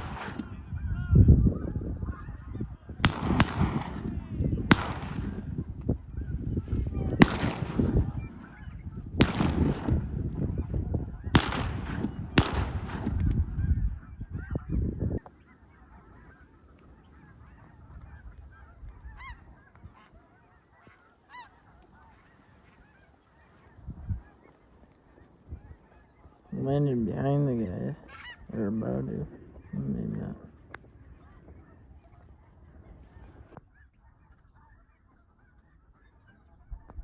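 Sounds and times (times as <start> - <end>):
sharp cracks: 0.0 - 0.6, 3.0 - 5.4, 7.1 - 10.2, 11.3 - 13.5
flock of geese calling: 0.0 - 37.0.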